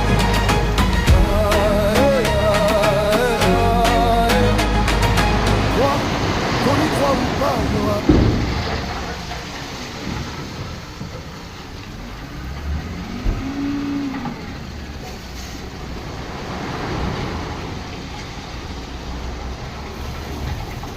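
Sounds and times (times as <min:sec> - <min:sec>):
rising and falling tone: 0:00.0 - 0:09.6
heavy vehicle rumbling: 0:00.0 - 0:20.9.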